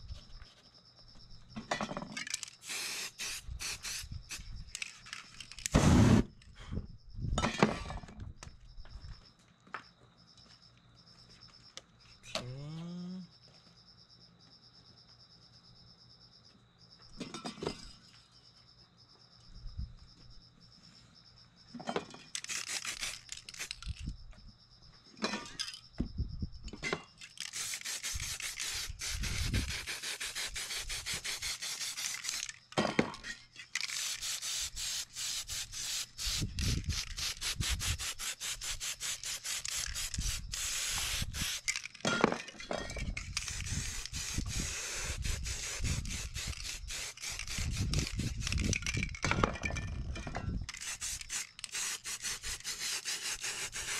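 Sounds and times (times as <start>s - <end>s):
spray paint cans hissing: 2.3s - 6.4s, 22.4s - 24.1s, 27.2s - 32.6s, 33.7s - 42.0s, 43.1s - 49.2s, 50.6s - 53.9s.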